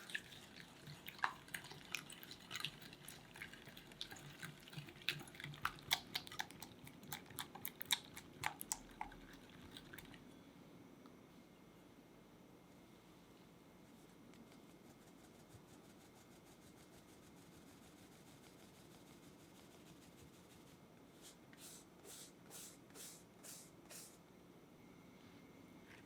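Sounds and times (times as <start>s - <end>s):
faint rubbing strokes: 13.8s - 24.2s.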